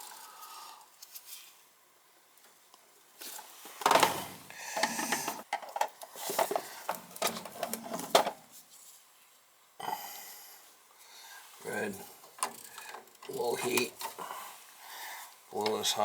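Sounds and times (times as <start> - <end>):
hands handling wiring and parts: 3.2 - 8.8, 12.2 - 14.2.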